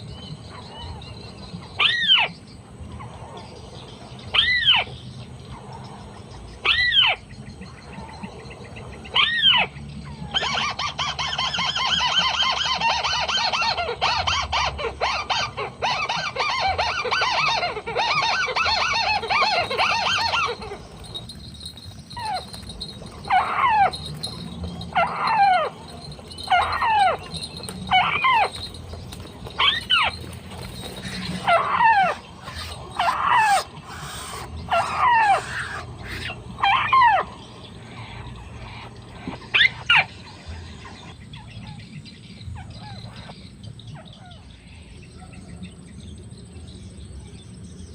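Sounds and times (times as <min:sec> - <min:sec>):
bird chattering: 0:10.4 - 0:40.2.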